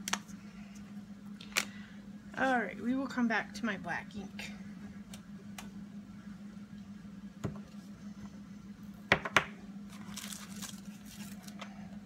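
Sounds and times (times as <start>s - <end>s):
steady low hum: 0.0s - 12.0s
paper rustling: 9.9s - 11.6s.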